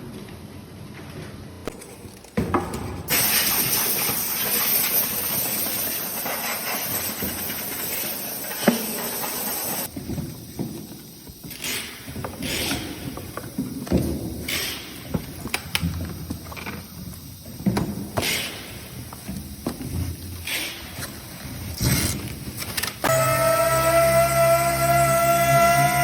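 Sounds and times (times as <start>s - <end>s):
loud hiss of blowing air: 3.1s - 13.8s, 14.4s - 22.5s.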